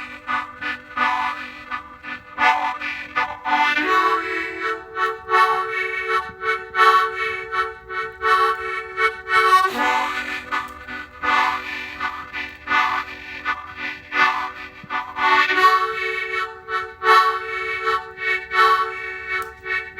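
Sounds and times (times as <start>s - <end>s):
harmonica playing: 0.0s - 19.9s.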